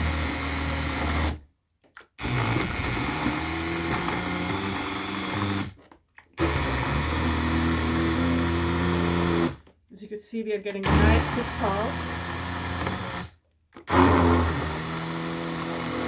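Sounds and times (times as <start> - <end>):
immersion blender churning pulp: 0.0 - 1.4, 2.0 - 9.7, 10.8 - 16.0.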